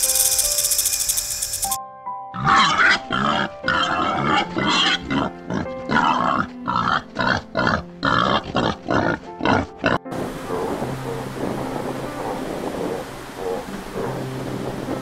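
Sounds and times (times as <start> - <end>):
background music: 0.0 - 15.0
warthog grunting: 2.4 - 10.8.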